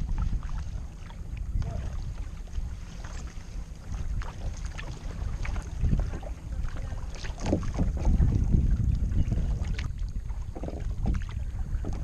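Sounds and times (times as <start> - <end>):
kayak paddle splashes and knocks: 0.0 - 12.0
wind rumbling on microphone: 0.0 - 12.0.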